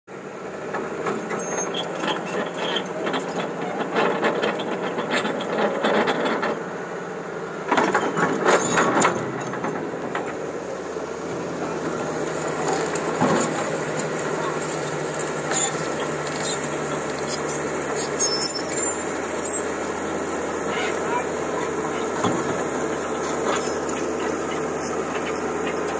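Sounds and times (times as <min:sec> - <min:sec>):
excavator engine running: 0:00.1 - 0:25.9
bucket clanking and scraping rock: 0:11.6 - 0:25.9.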